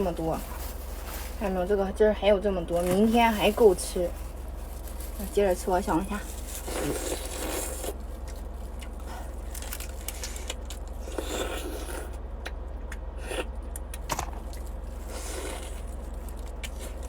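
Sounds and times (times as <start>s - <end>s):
steady low hum: 0.0s - 17.0s
chewing: 6.6s - 17.0s.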